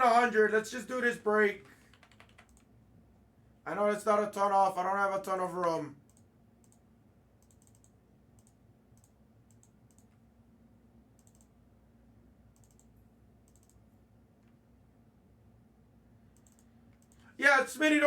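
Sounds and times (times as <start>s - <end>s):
keyboard typing: 1.8s - 2.7s, 7.4s - 10.2s, 11.2s - 11.5s, 12.6s - 13.8s, 16.4s - 17.2s.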